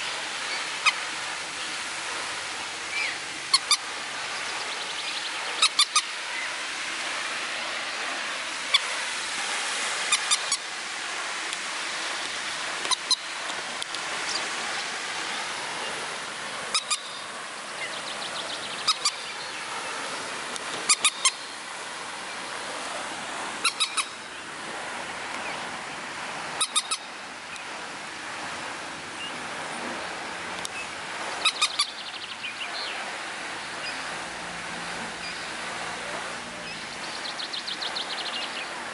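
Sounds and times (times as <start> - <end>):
steady rushing noise: 0.0 - 38.9
bird call notes: 2.9 - 6.6, 16.7 - 19.7, 20.9 - 21.6, 23.6 - 24.4, 26.6 - 27.6, 30.7 - 33.0.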